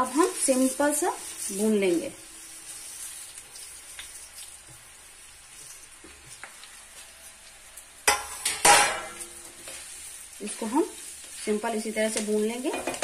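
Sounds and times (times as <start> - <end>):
light crackles: 0.0 - 8.1
puffed rice sizzling in oil: 0.0 - 13.0.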